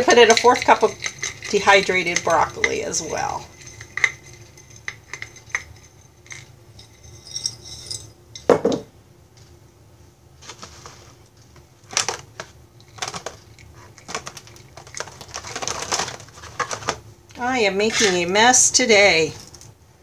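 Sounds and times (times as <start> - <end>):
dried pieces rattling into bag: 0.0 - 4.4, 11.9 - 17.0
cup clinking: 0.1 - 8.9.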